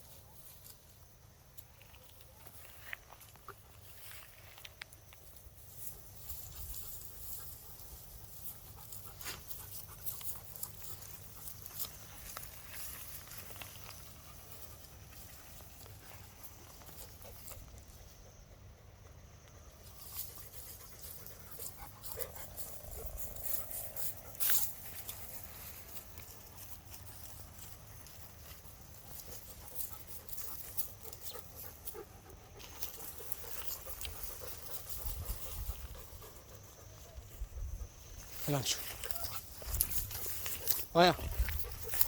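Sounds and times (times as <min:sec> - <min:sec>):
dog sounds: 0:20.0 - 0:42.0.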